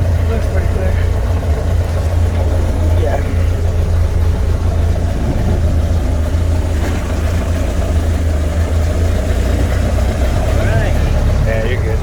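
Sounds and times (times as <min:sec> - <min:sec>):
truck engine running low hum: 0:00.0 - 0:12.0.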